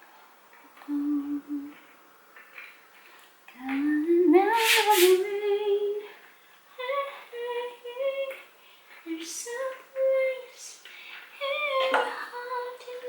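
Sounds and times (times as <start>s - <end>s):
woman humming: 0.8s - 1.8s.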